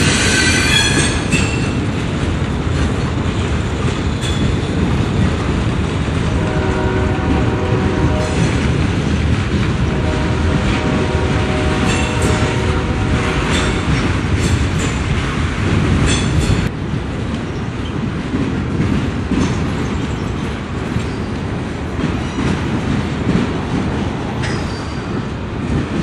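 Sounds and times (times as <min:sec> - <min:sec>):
train wheel squeal: 0:00.0 - 0:01.8, 0:19.4 - 0:21.5, 0:22.1 - 0:22.7, 0:24.4 - 0:25.4
freight train wheels clattering: 0:00.0 - 0:26.0.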